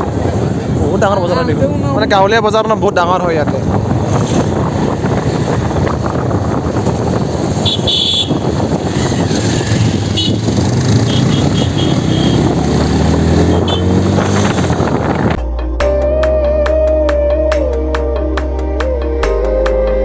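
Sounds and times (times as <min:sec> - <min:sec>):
wind and road noise: 0:00.0 - 0:15.6
vehicle engine speeding up: 0:03.7 - 0:15.4
background music: 0:12.4 - 0:20.0.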